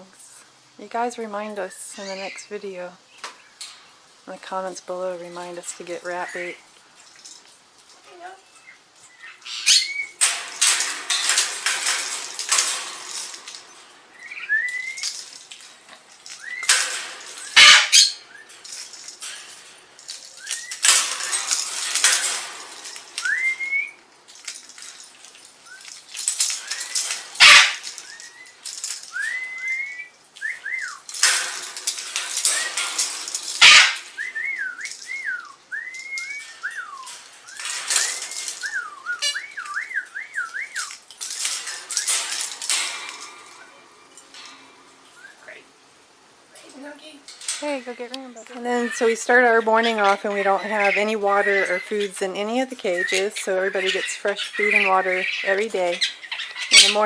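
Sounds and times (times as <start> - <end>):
pet birds whistling: 8.4 - 10.2, 14.1 - 15.2, 16.4 - 16.8, 17.4 - 18.6, 20.3 - 21.4, 22.8 - 24.0, 26.6 - 31.1, 33.6 - 41.0, 45.1 - 45.5, 47.8 - 57.0.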